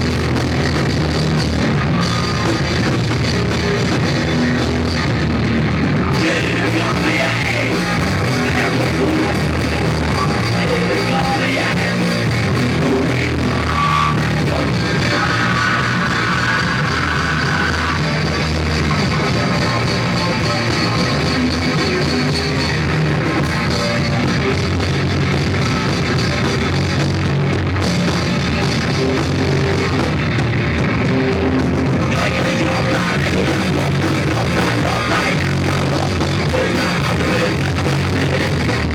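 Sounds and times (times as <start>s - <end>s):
electric guitar: 0.0s - 38.9s
live rock band playing: 0.0s - 38.9s
person singing: 6.1s - 22.9s, 32.0s - 38.9s.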